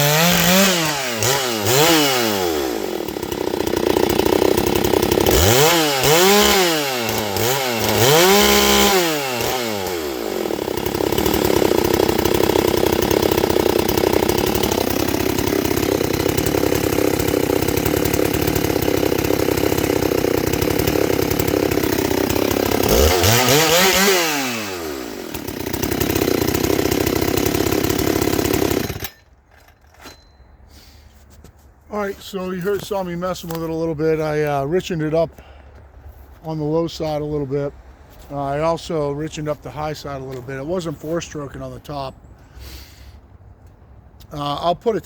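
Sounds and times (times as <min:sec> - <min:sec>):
chainsaw revving: 0:00.0 - 0:29.2.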